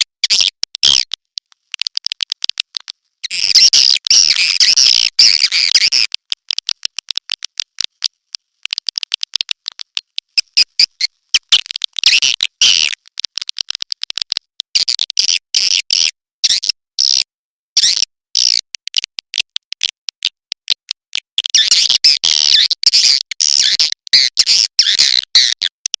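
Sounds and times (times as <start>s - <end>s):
swiftlet chirps and clicks: 1.8s - 13.6s.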